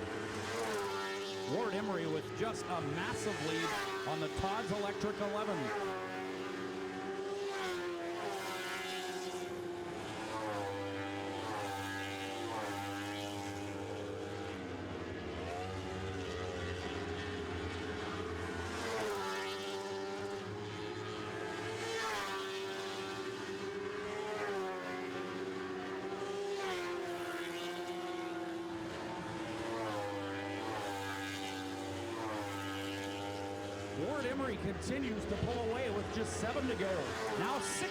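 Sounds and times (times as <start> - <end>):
race car engines revving: 0.0 - 37.9.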